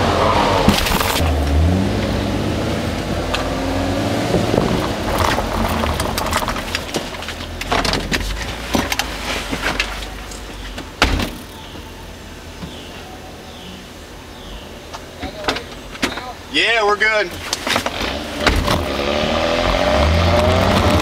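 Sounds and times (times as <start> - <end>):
car engine under light throttle: 0.0 - 10.8, 17.4 - 21.0.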